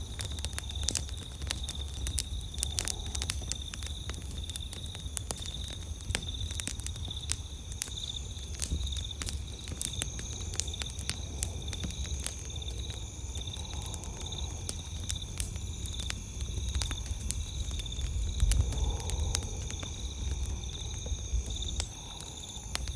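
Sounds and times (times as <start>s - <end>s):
crickets chirping: 0.0s - 22.9s
wood fire crackling and popping: 0.0s - 22.9s
high insect trill: 0.2s - 22.9s.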